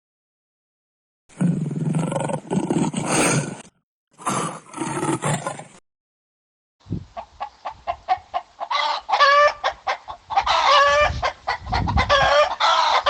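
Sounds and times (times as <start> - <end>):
chicken clucking: 7.2 - 13.0.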